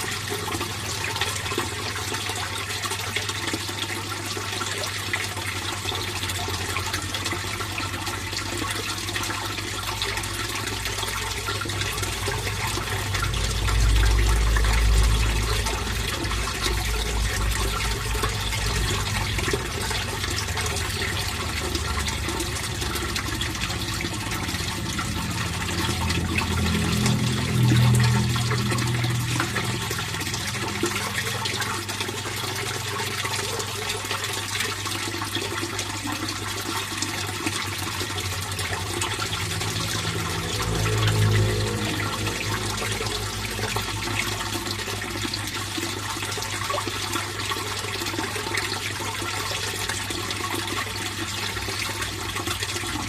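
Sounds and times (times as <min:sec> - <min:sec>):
water splashing into pond: 0:00.0 - 0:53.0.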